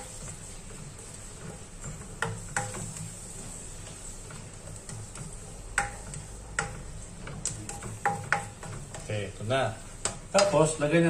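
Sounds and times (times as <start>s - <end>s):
onions sizzling in a pan: 0.0s - 11.0s
utensil knocking against pan: 1.4s - 3.0s, 5.0s - 9.1s.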